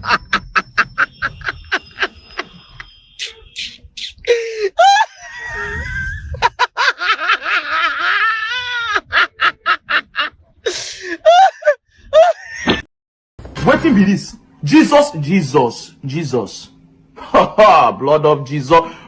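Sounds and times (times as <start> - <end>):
voice screaming and cackling: 3.2 - 10.4.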